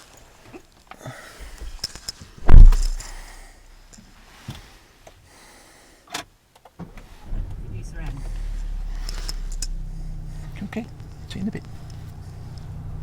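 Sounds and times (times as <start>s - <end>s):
heavy thump with low rumble: 2.4s - 3.4s, 7.3s - 13.0s.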